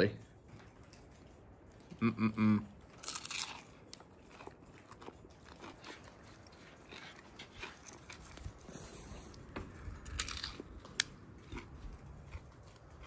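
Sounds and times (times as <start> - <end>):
chewing with small crunches: 0.1 - 13.0
person humming: 2.0 - 2.7
crisp crunch of biting: 2.8 - 13.0.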